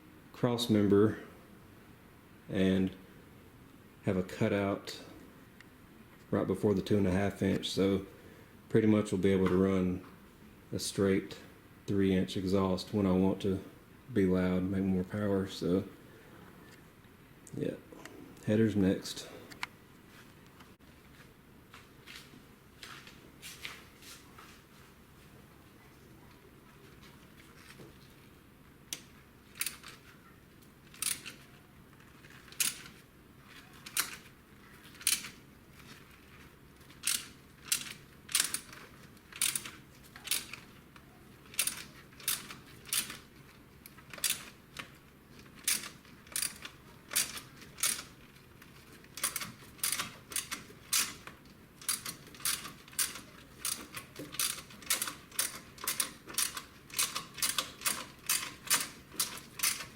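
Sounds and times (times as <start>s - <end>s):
ratchet wrench clicking: 37.0s - 40.6s, 41.5s - 43.2s, 45.6s - 48.1s, 51.8s - 59.9s.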